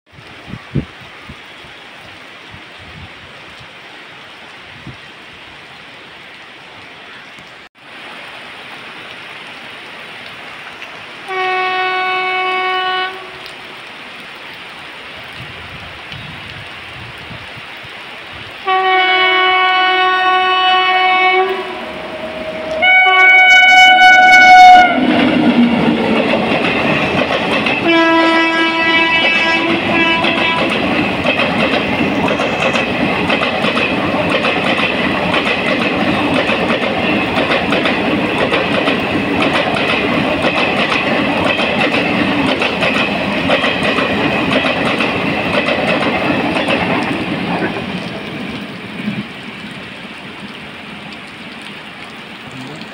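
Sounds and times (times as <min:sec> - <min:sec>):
heavy rain hissing: 0:07.8 - 0:52.9
locomotive horn blasts: 0:11.3 - 0:13.4, 0:18.6 - 0:25.2, 0:27.8 - 0:30.7
train rumble and clickety-clack: 0:20.2 - 0:49.8.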